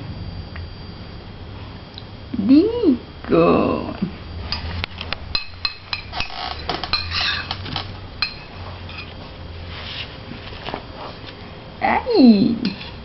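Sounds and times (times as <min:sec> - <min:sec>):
spoon clinking against dish: 0:05.4 - 0:06.2, 0:06.9 - 0:07.5, 0:08.2 - 0:09.1.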